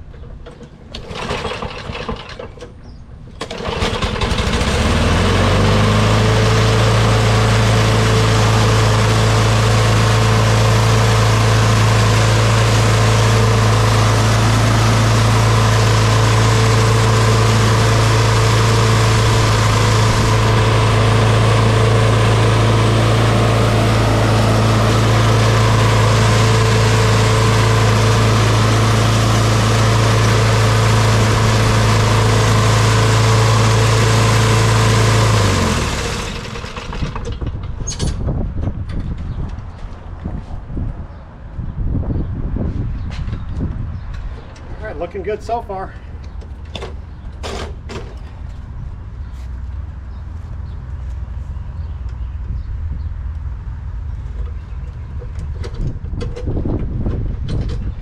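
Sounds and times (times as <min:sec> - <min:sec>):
lawn mower engine running: 0:00.1 - 0:38.2.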